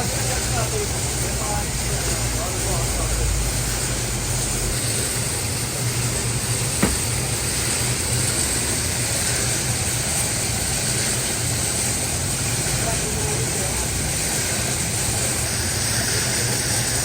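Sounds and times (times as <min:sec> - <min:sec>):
workshop machinery whirring: 0:00.0 - 0:17.0
sharp click: 0:06.8 - 0:07.2.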